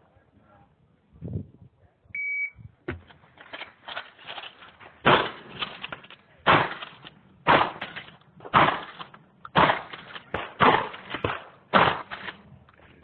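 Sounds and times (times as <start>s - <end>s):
shotgun shots: 5.0s - 5.7s, 6.4s - 12.4s.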